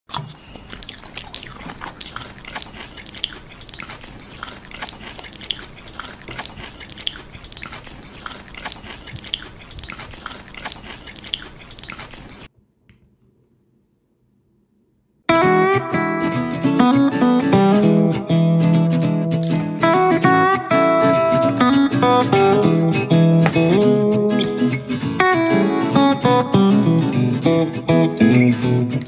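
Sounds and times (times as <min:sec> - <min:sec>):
crunchy chewing and biting: 0:00.6 - 0:12.5.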